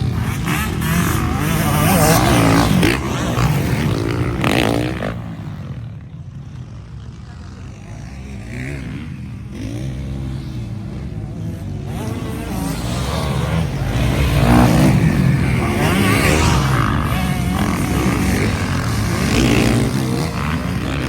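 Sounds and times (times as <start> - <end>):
motocross bike engines revving: 0.0 - 21.0.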